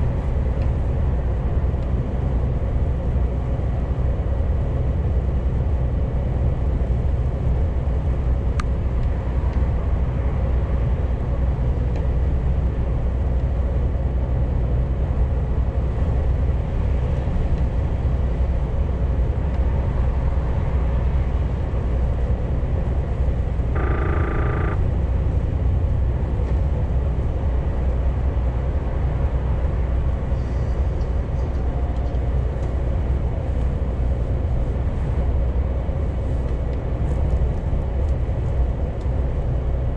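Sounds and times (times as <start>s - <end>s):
truck engine droning: 21.1s - 36.4s
short pitched tone: 23.8s - 24.9s.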